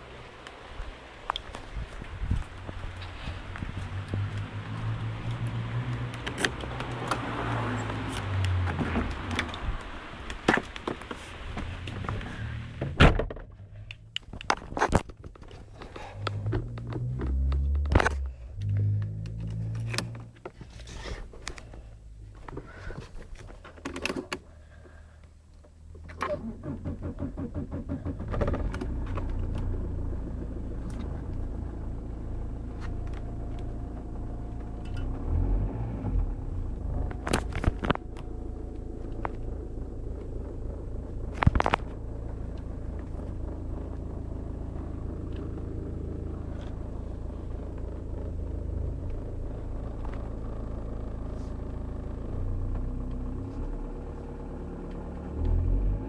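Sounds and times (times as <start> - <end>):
car engine idling: 0.0 - 14.6, 15.5 - 56.0
car starter cranking: 25.7 - 53.9.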